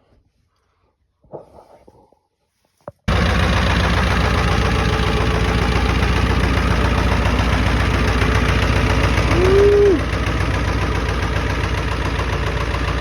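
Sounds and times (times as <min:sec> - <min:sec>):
diesel engine starting and running: 0:03.1 - 0:13.0.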